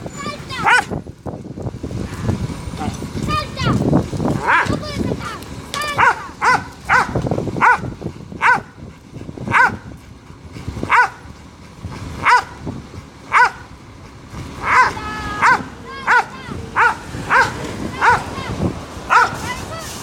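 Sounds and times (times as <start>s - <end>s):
dog barking: 0.6s - 0.9s, 4.4s - 4.8s, 5.9s - 8.8s, 9.5s - 9.8s, 10.9s - 11.2s, 12.2s - 12.6s, 13.3s - 13.6s, 14.6s - 18.3s, 19.1s - 19.4s.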